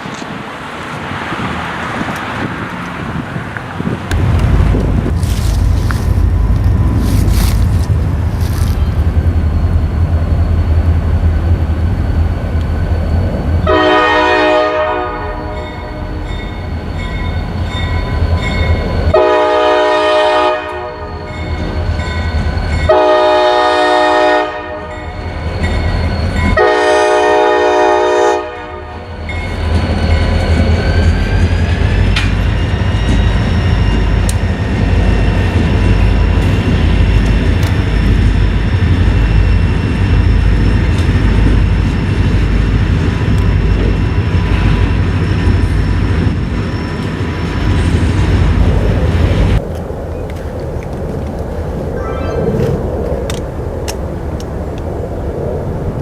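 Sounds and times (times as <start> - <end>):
train rumbling: 0.0 - 56.0
locomotive air horn blasts: 13.6 - 16.3, 19.1 - 21.3, 22.9 - 25.0, 26.6 - 29.1.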